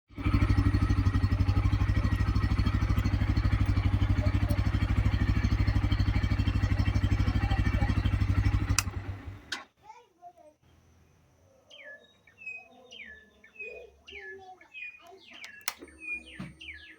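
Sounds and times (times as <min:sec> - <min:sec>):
motorcycle engine idling: 0:00.1 - 0:09.6
ignition switch click: 0:08.7 - 0:09.6, 0:15.4 - 0:16.0.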